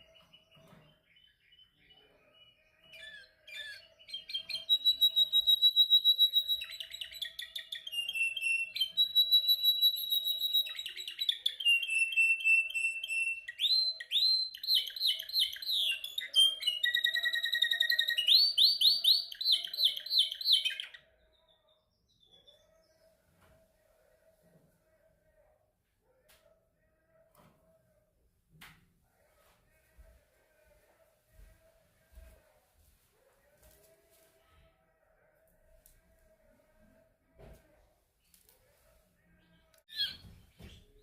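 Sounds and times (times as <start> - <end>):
canary singing trills: 0.0 - 23.1, 39.9 - 40.4.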